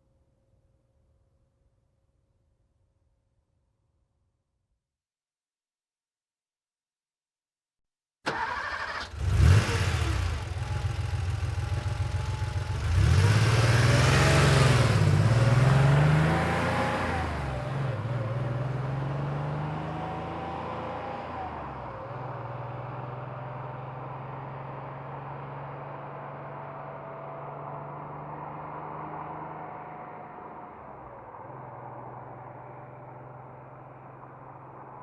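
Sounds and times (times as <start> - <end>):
car engine starting: 8.3 - 19.9
car accelerating through gears: 8.3 - 30.5
car engine idling: 10.0 - 12.9.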